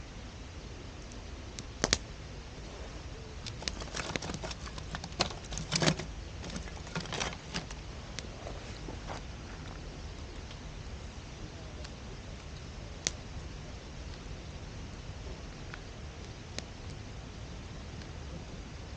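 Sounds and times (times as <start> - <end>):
campfire crackling: 0.1 - 18.9
sharp cracks and pops: 1.0 - 2.1, 3.4 - 8.3, 11.7 - 13.5, 15.6 - 17.0.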